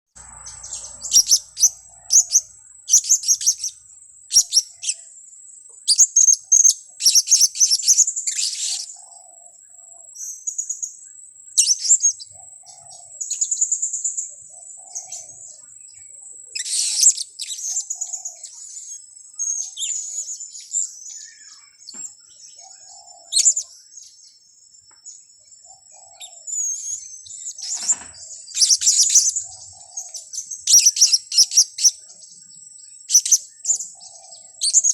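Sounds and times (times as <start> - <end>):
parrots shrill chirps: 0.2 - 5.0, 5.9 - 8.9, 16.6 - 17.7, 27.6 - 29.5, 30.6 - 32.0.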